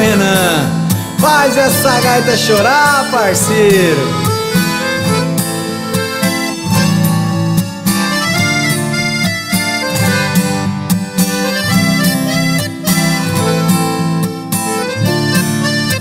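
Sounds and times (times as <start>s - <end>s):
harmonica melody: 0.0s - 16.0s
strummed guitar: 0.0s - 16.0s.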